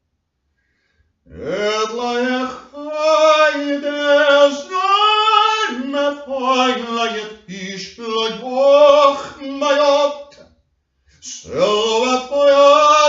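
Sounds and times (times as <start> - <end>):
singer breathing: 0.5 - 1.2.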